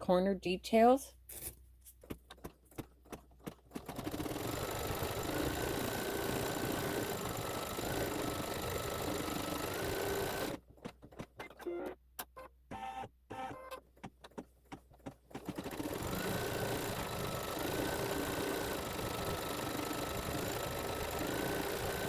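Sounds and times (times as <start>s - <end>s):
embroidery machine stitching: 3.0s - 11.9s, 14.8s - 22.0s.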